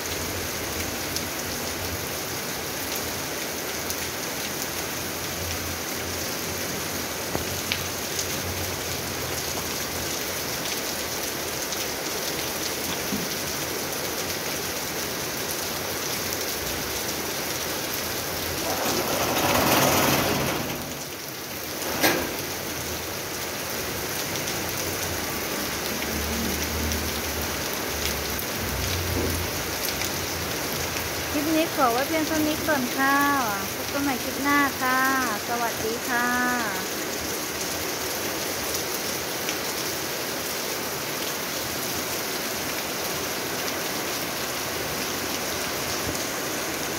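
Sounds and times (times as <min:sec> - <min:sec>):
heavy rain falling: 0:00.0 - 0:46.9.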